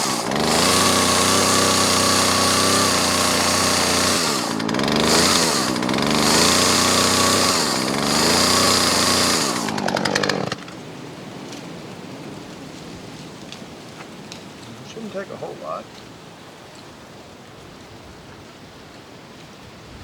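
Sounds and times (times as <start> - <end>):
chainsaw running: 0.0 - 10.8
faint steady hiss: 11.1 - 20.0.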